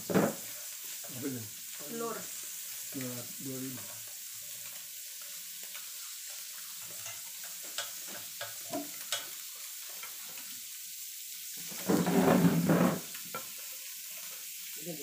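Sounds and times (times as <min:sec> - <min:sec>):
food sizzling on a grill plate: 0:00.0 - 0:15.0.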